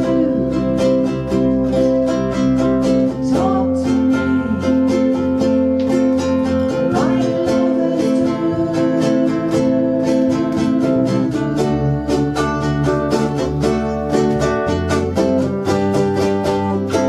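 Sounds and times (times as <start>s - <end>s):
held bass line: 0.0s - 17.0s
ukuleles strumming chords: 0.0s - 17.0s.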